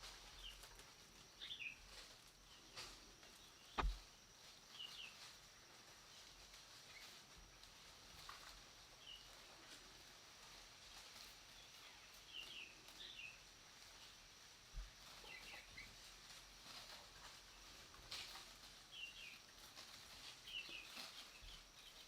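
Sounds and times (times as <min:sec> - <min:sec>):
faint high insect hum: 0:00.0 - 0:22.0
soft low thump: 0:03.8 - 0:04.0.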